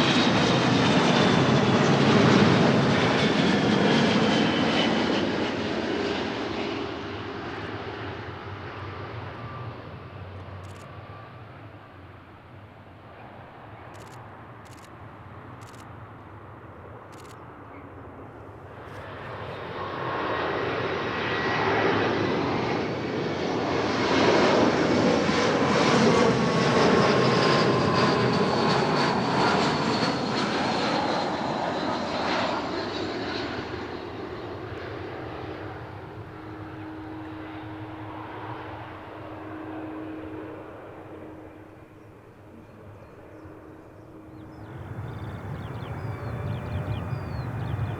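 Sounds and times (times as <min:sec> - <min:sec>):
jet airliner passing: 0:00.0 - 0:47.9
steady low hum: 0:43.9 - 0:47.9
high engine whine: 0:44.6 - 0:47.9.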